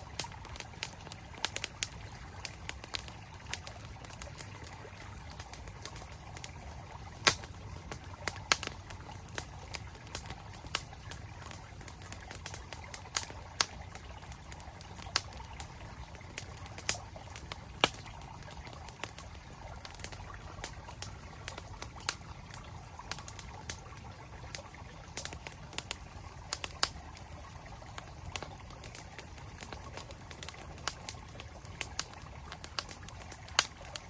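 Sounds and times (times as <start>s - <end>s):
campfire crackling and popping: 0.0s - 34.0s.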